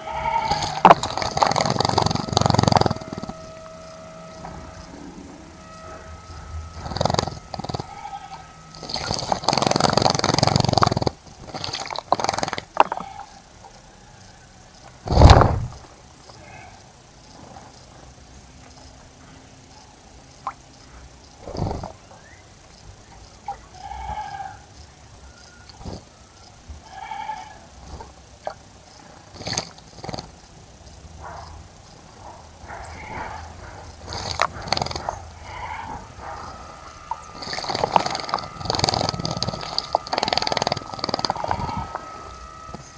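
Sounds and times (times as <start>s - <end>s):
short bird calls: 0.0s - 10.8s
wings fluttering: 15.1s - 15.9s, 32.2s - 42.9s.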